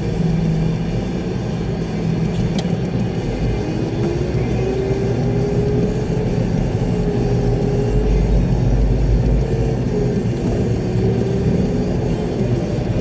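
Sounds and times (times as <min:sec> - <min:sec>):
road rumble: 0:00.0 - 0:13.0
steady whine: 0:00.0 - 0:13.0
truck diesel engine: 0:00.0 - 0:13.0.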